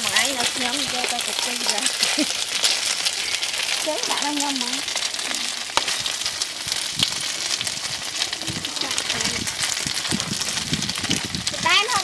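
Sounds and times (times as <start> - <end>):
cakes sizzling in oil: 0.0 - 12.0.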